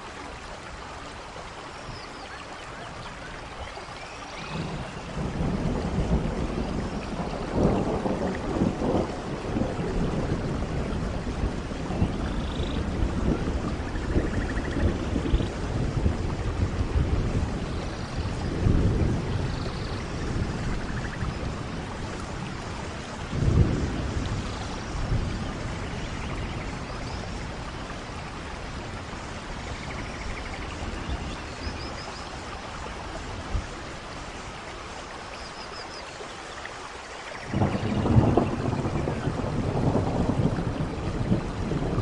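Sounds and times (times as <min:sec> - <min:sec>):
steady rain: 0:00.0 - 0:42.0
rolls of thunder: 0:04.4 - 0:27.6, 0:37.4 - 0:42.0.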